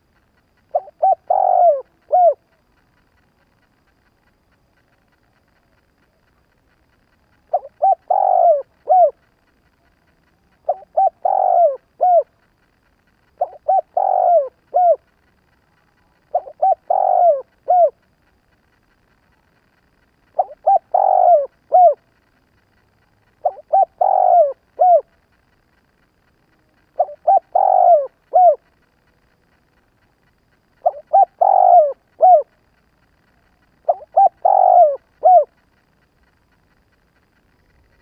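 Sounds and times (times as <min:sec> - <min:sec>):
dove cooing: 0:00.0 - 0:04.1, 0:05.6 - 0:18.2, 0:20.0 - 0:22.2, 0:23.3 - 0:25.3, 0:26.7 - 0:28.8, 0:30.7 - 0:32.8, 0:33.6 - 0:35.7.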